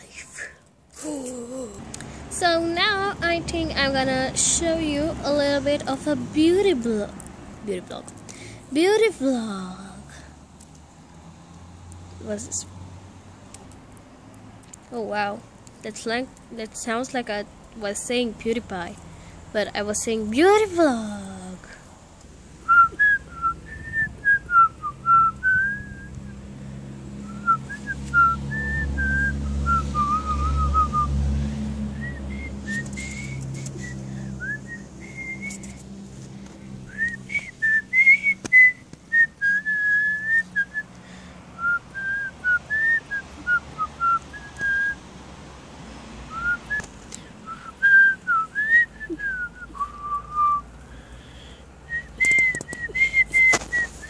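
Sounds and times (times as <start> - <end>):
person whistling a tune: 22.7 - 26.3, 27.2 - 31.2, 31.9 - 35.8, 36.9 - 40.9, 41.6 - 45.0, 46.3 - 50.7, 51.9 - 54.0.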